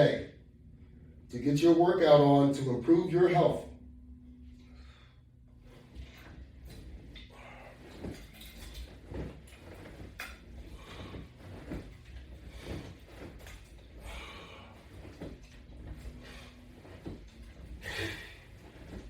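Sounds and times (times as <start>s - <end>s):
low steady hum: 0.0s - 19.0s
creaks and clicks of exercise straps: 5.7s - 19.0s.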